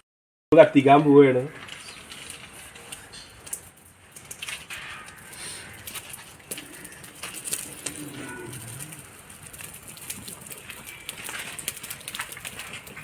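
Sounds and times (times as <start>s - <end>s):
birds calling: 1.1s - 9.3s
low cooing: 6.5s - 9.2s.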